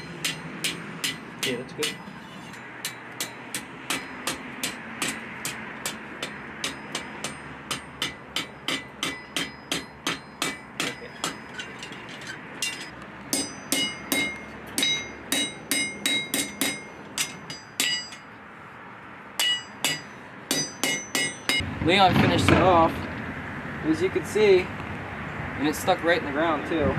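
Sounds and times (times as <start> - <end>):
hammer striking steel on anvil: 0.0 - 18.3, 19.4 - 21.6.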